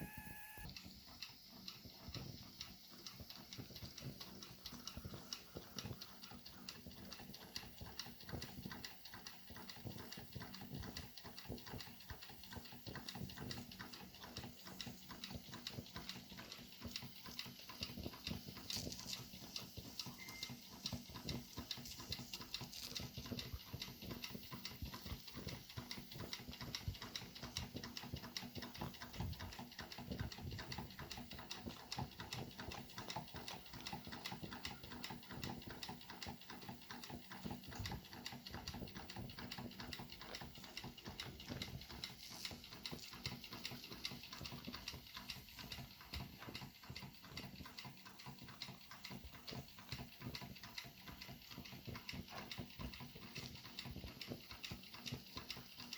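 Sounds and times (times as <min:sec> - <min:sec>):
crackling and ticking boiler: 0:00.0 - 0:55.9.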